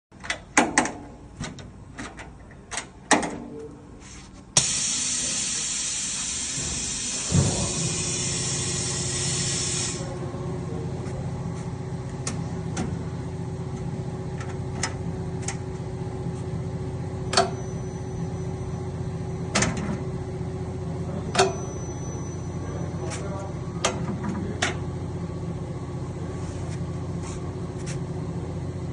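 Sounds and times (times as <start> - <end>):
water hissing: 4.6 - 10.1
washing machine motor hum: 4.6 - 28.9.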